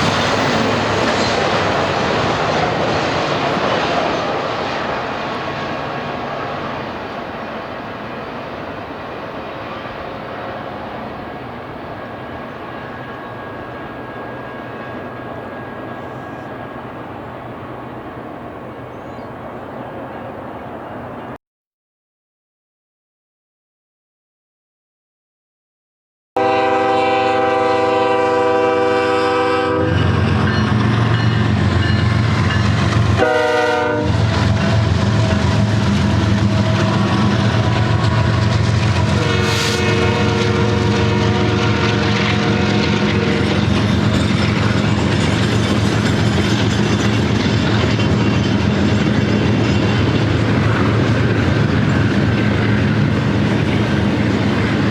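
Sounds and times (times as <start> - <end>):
train wheels rumbling on rail: 0.0 - 21.4, 26.4 - 54.9
locomotive air horn: 26.4 - 30.2, 33.2 - 34.9, 36.5 - 43.5.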